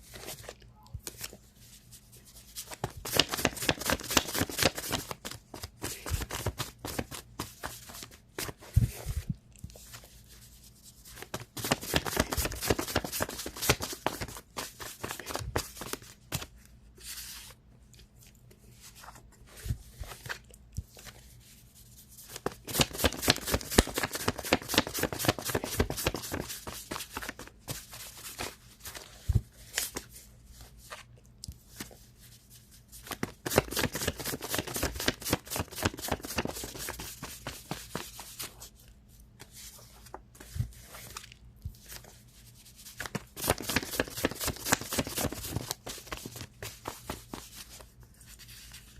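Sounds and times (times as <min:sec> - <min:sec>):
cards being shuffled: 0:02.5 - 0:10.2, 0:11.1 - 0:17.5, 0:22.3 - 0:30.2, 0:33.0 - 0:38.8, 0:42.9 - 0:48.9.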